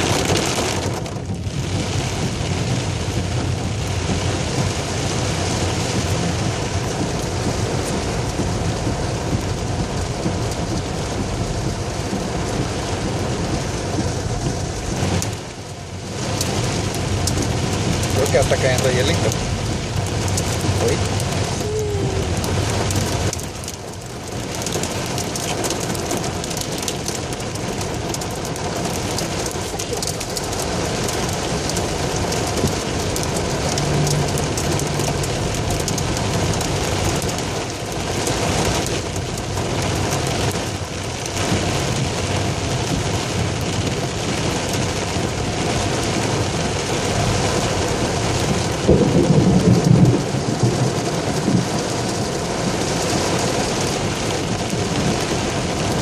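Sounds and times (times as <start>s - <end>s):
heavy rain pouring: 0.0s - 56.0s
low rumble: 29.0s - 40.6s.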